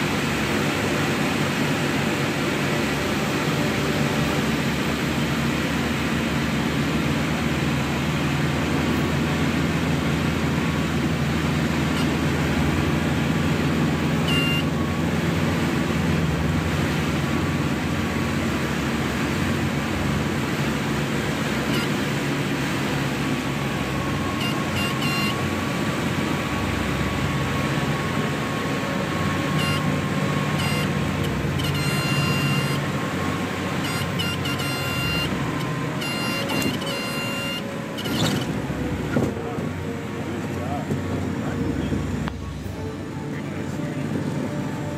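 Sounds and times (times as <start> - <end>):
airplane engines droning: 0.0 - 44.9
short high beeps: 11.9 - 12.2, 14.2 - 14.7, 21.6 - 22.0, 24.3 - 25.5, 29.4 - 32.9, 33.7 - 39.5.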